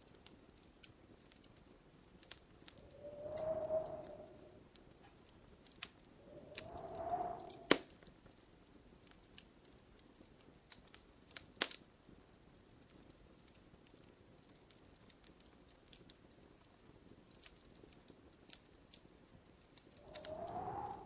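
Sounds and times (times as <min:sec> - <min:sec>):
wood fire crackling: 0:00.0 - 0:21.0
whistling hiss from fire: 0:02.6 - 0:08.2, 0:19.8 - 0:21.0
sharp pop from fire: 0:07.4 - 0:07.9, 0:11.6 - 0:11.8.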